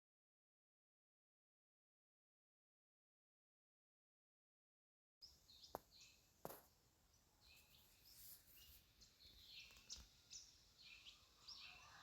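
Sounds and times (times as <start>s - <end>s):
faint bird chirps: 5.2s - 12.0s.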